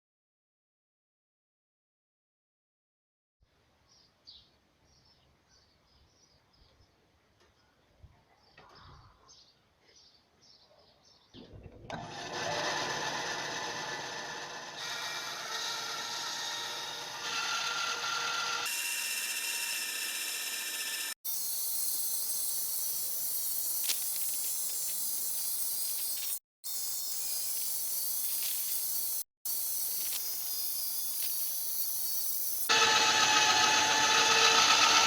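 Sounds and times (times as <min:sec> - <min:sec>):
woodworking tool rasping: 0:27.2 - 0:35.0.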